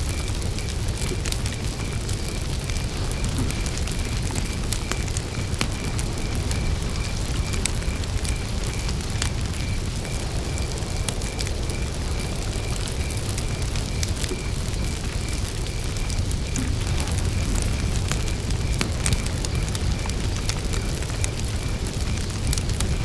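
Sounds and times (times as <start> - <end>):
campfire crackling and popping: 0.0 - 23.0
cricket chirping: 0.0 - 23.0.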